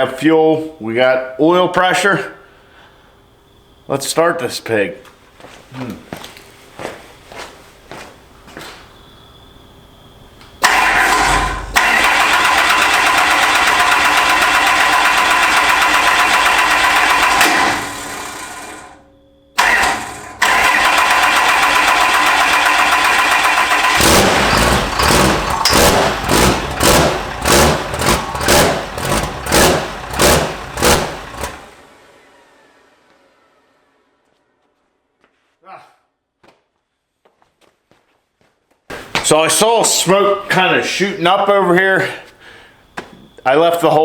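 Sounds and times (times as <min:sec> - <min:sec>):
diesel engine cranking: 0:10.6 - 0:19.0, 0:19.6 - 0:34.4.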